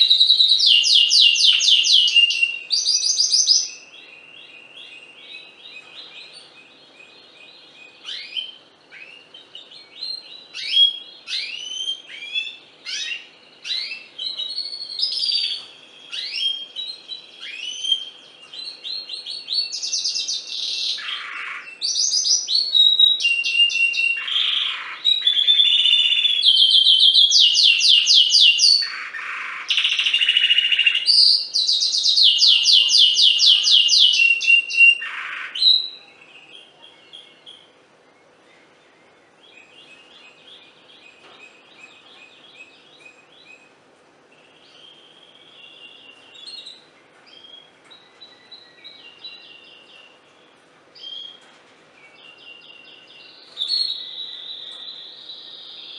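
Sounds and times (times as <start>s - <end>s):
canary singing trills: 0.0s - 55.9s.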